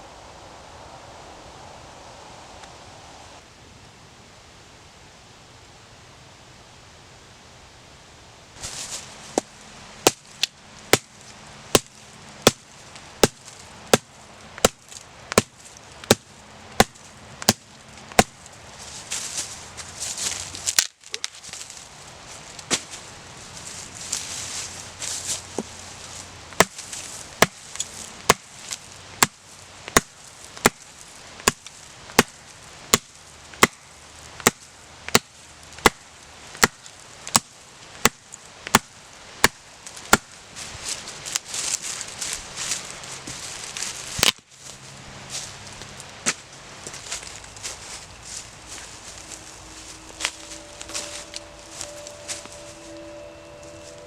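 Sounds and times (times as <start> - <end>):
axe chopping wood: 10.9 - 11.1, 11.7 - 18.4, 26.6 - 28.6, 29.2 - 33.8, 34.4 - 36.0, 36.6 - 40.3.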